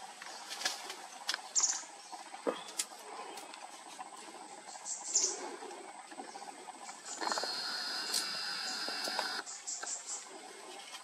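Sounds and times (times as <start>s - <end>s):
high-pitched bird calls: 6.8s - 10.2s
sharp clicks: 7.1s - 9.4s.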